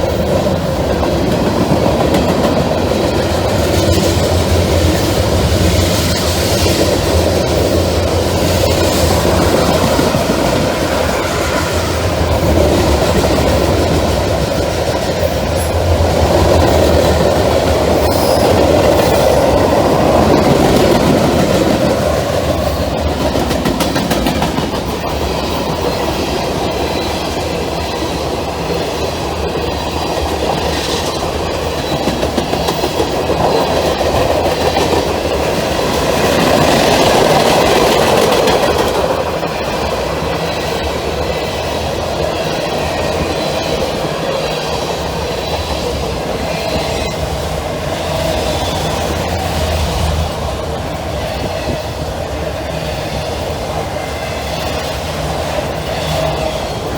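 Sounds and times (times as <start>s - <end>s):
freight train wheels clattering: 0.0s - 56.9s.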